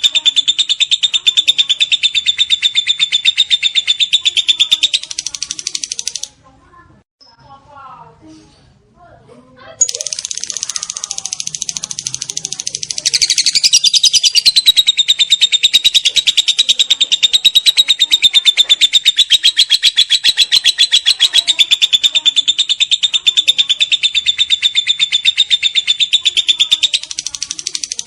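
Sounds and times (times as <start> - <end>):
bird chattering trill: 0.0 - 6.4, 9.8 - 28.0.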